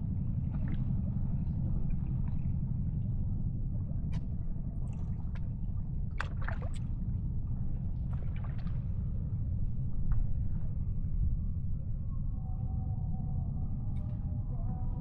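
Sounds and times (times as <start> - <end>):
low rumble: 0.0 - 15.0
water splashes and trickles: 4.2 - 9.2.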